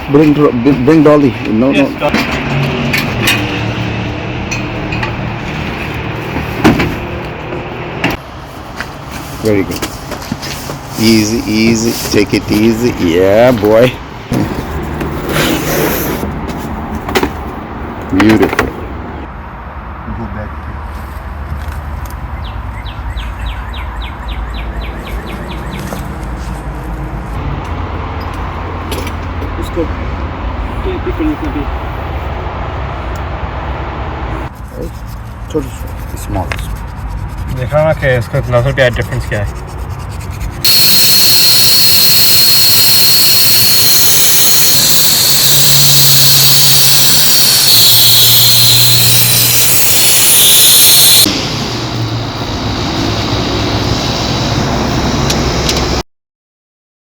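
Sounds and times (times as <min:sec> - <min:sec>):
bird chirping: 0:22.3 - 0:26.1
loud steady rushing hiss: 0:40.7 - 0:55.5.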